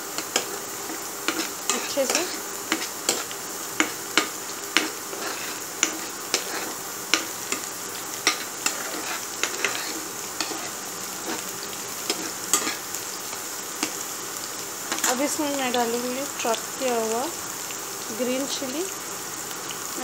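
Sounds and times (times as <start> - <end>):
food sizzling in hot oil: 0.0 - 20.0
spoon scraping against pan: 0.2 - 14.1.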